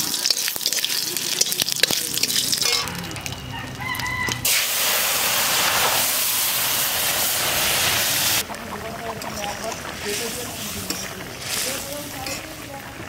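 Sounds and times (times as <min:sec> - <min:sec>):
spices sizzling in hot oil: 0:00.0 - 0:13.0
rooster crowing: 0:03.3 - 0:04.5
loud frying hiss: 0:04.3 - 0:13.0.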